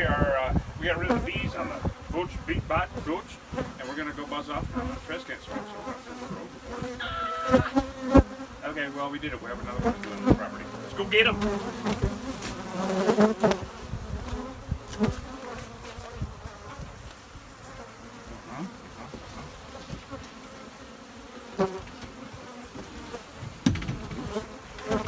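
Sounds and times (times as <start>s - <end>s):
bees buzzing: 0.0s - 25.0s
knocks and thumps: 11.3s - 12.6s, 21.8s - 25.0s.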